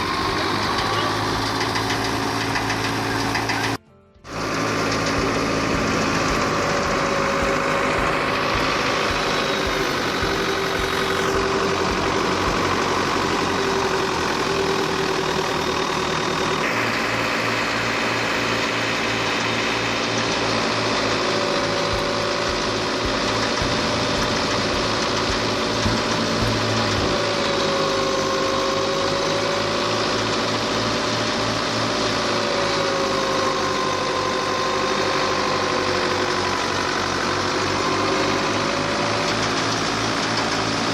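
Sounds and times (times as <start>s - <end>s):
engine drone: 0.0s - 40.9s
thresher clattering: 0.8s - 3.8s.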